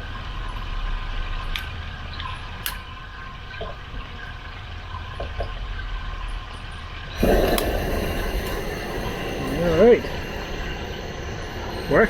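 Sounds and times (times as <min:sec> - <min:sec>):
steady low rumble: 0:07.2 - 0:12.0
water running from hose: 0:07.2 - 0:12.0.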